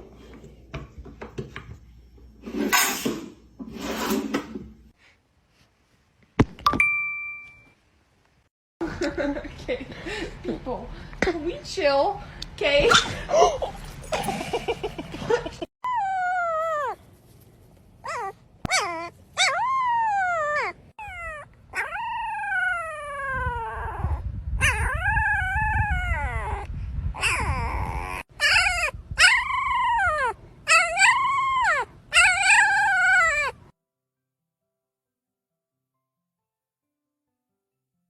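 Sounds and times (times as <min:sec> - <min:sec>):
dog whining and howling: 0:15.8 - 0:17.0, 0:18.0 - 0:33.7.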